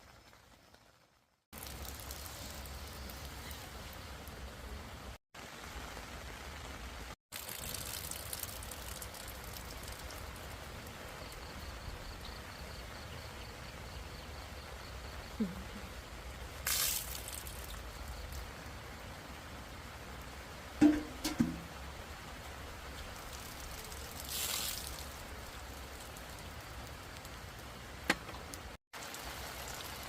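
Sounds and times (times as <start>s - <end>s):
rain falling: 0.0s - 30.0s.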